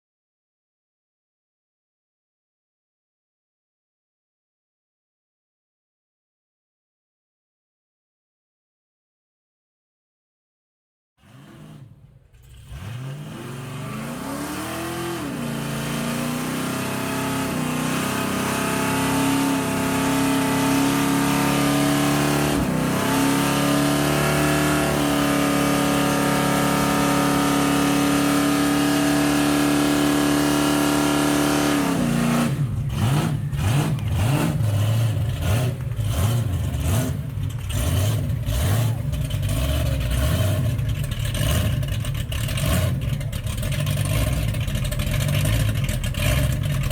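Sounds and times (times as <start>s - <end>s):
car engine starting and idling: 11.2s - 46.9s.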